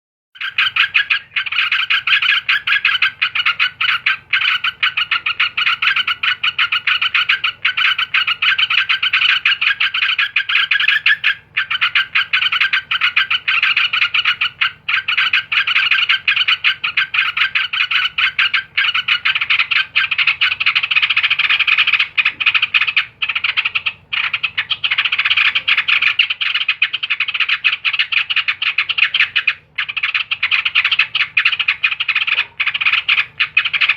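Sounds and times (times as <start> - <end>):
bulbul chattering trill: 0.4 - 33.9.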